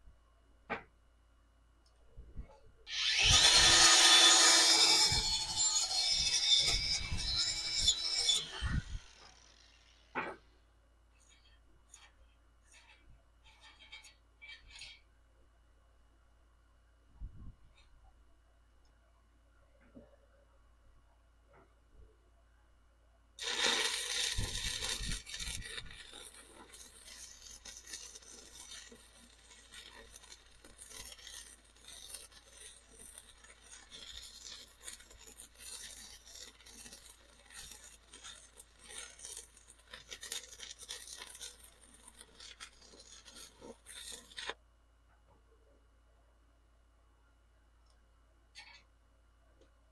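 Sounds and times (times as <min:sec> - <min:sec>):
welding arc crackling: 0:02.9 - 0:10.2, 0:23.4 - 0:44.6.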